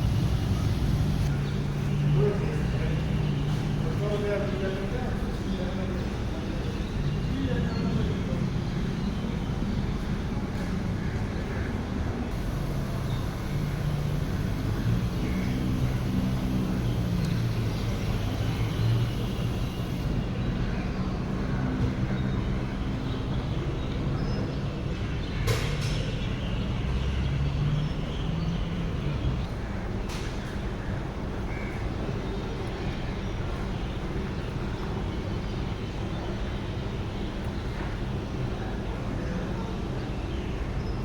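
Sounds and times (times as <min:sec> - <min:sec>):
washing machine running: 0:00.0 - 0:01.3, 0:12.3 - 0:20.2.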